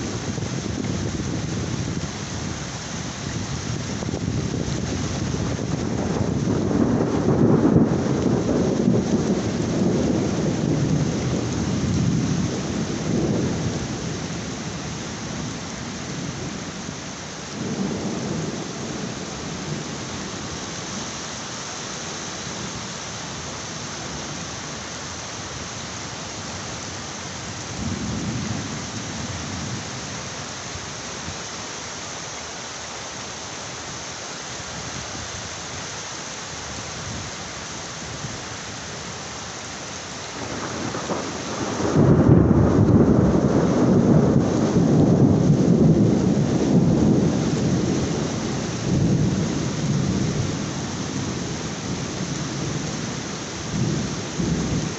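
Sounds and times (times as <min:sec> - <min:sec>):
heavy rain falling: 0:00.0 - 0:54.9
rolling thunder: 0:03.3 - 0:14.4, 0:17.6 - 0:20.4, 0:27.8 - 0:29.9, 0:40.4 - 0:54.9.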